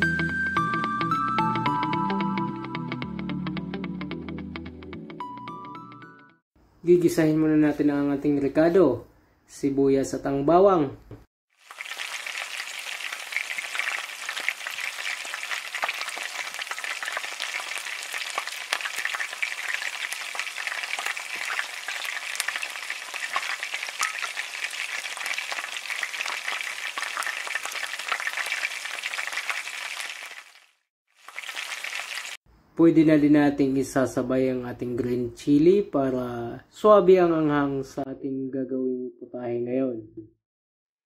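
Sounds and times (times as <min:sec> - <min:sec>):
onion sizzling in hot oil: 0:11.5 - 0:32.4.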